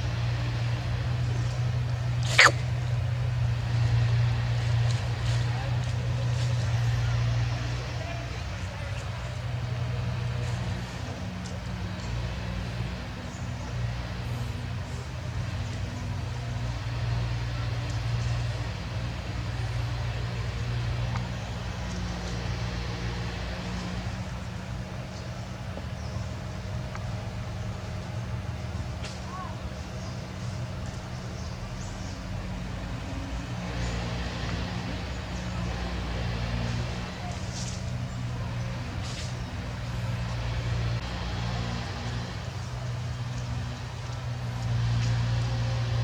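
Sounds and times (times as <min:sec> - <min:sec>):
engine humming steadily: 0:00.0 - 0:46.0.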